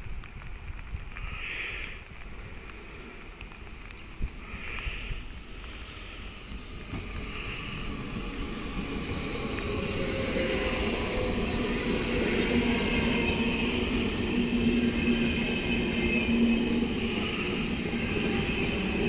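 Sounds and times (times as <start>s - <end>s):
electric train running: 5.2s - 19.0s
faint steady whistle: 5.6s - 19.0s.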